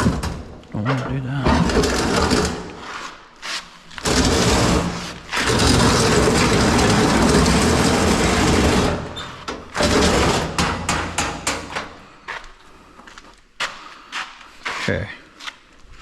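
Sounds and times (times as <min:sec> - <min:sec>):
knocks and clatters: 0:00.0 - 0:02.8, 0:04.0 - 0:12.0
heavy equipment scraping on floor: 0:01.4 - 0:10.9.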